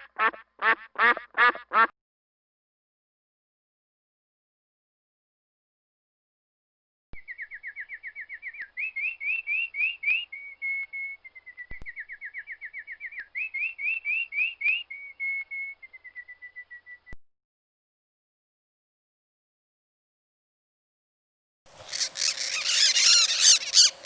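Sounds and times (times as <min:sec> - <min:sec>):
songbird singing whistled phrase: 0:07.2 - 0:17.2.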